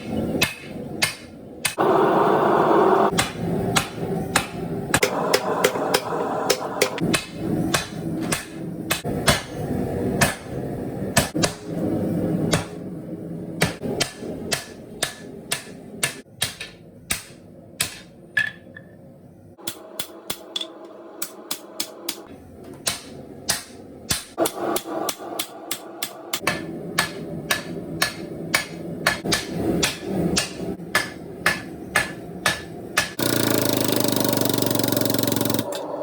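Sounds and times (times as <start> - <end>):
hammer striking steel on anvil: 0.0 - 1.8, 3.1 - 9.6, 10.2 - 10.6, 11.2 - 11.8, 12.5 - 12.8, 13.6 - 18.6, 19.6 - 33.4
steady rushing noise: 1.8 - 9.0.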